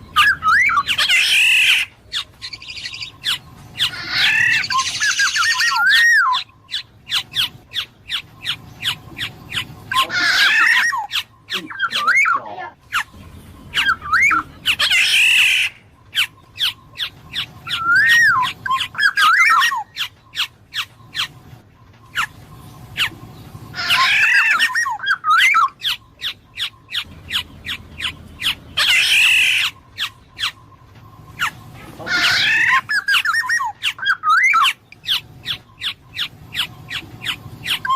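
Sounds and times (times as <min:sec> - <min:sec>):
bird harsh squawks: 0:00.0 - 0:21.4, 0:23.0 - 0:30.6, 0:31.3 - 0:37.9
bird fluty whistled phrases: 0:00.1 - 0:01.9, 0:02.5 - 0:07.3, 0:08.1 - 0:13.1, 0:13.8 - 0:21.3, 0:32.2 - 0:37.9.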